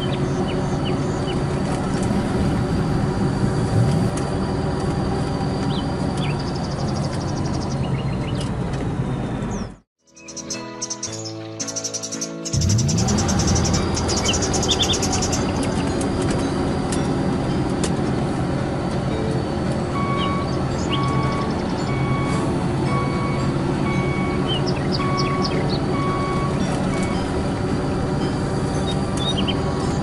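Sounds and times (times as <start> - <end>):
truck engine running: 0.0 - 9.8, 12.5 - 30.0
reversing alarm beeps: 19.9 - 27.4.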